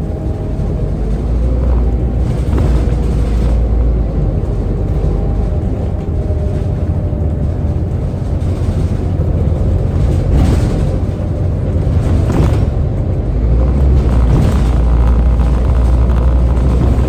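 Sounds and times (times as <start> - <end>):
bus engine rumble: 0.0 - 17.0.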